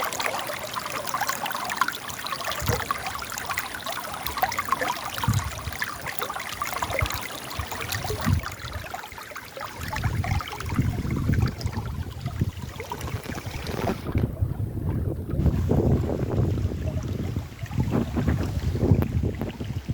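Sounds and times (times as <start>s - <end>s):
river water splashing over rocks: 0.0s - 14.4s
low wind rumble: 9.8s - 19.9s.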